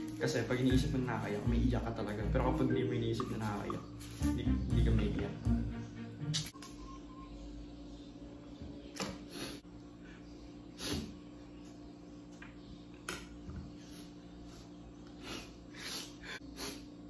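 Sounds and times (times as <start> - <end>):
low room hum: 0.0 - 17.0
person sniffing and sobbing: 15.1 - 17.0.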